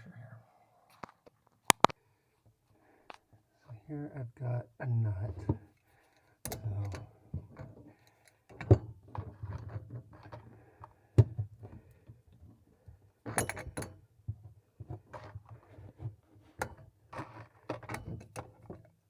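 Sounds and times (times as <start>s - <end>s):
metal wrench clinking on nut: 13.3s - 14.0s.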